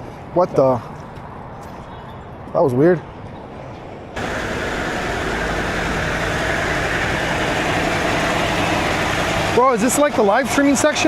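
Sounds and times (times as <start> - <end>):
truck diesel engine running: 4.2 - 11.0.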